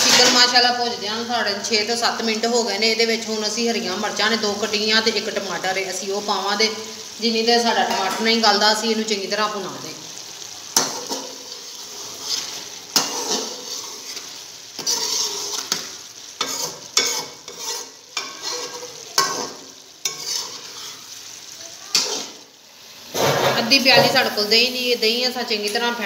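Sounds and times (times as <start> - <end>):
chicken sizzling in ghee: 0.0 - 26.0
spatula scraping metal pot: 10.8 - 21.1.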